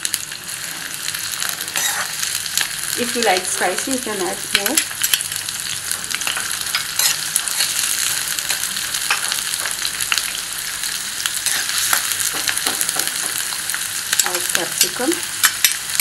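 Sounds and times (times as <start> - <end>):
onion sizzling in hot oil: 0.0 - 16.0
steel spoon scraping a pan: 1.7 - 2.3, 6.2 - 9.4, 11.4 - 12.0.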